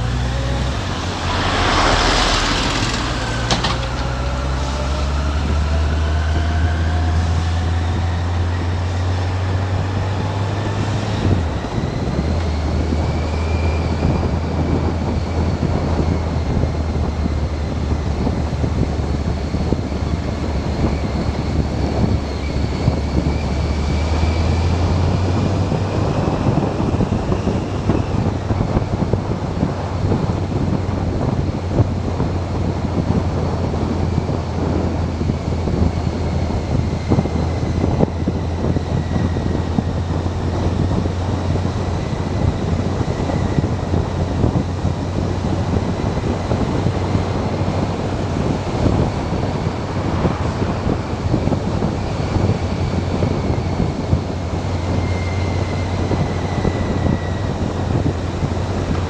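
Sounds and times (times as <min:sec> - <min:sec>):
faint whine: 0:00.0 - 0:04.9
motorcycle engine drone: 0:00.0 - 0:59.0
wind rush on microphone: 0:00.0 - 0:59.0.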